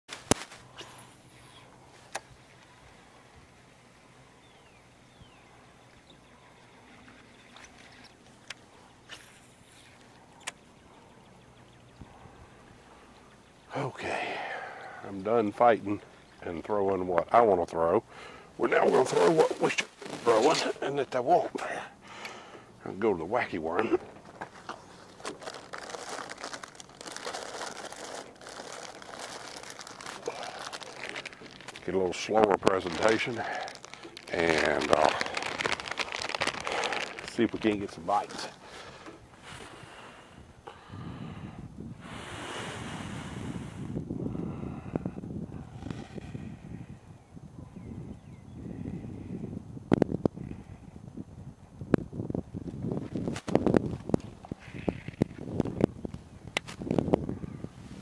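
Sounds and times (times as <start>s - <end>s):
plastic bag crinkling: 24.3s - 39.1s.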